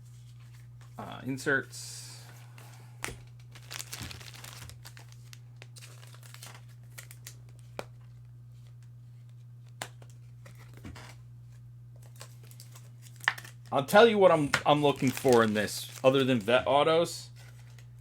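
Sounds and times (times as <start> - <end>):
low electrical hum: 0.0 - 18.0
cards and wrappers rustling: 3.0 - 7.9, 12.0 - 16.7, 17.3 - 18.0.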